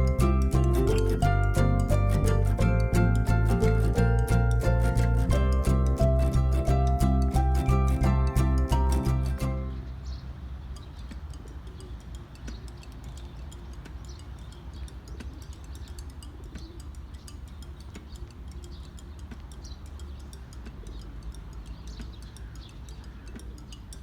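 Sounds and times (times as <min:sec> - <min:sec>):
steady low rumble: 0:00.0 - 0:10.1
small birds chirping: 0:00.0 - 0:24.0.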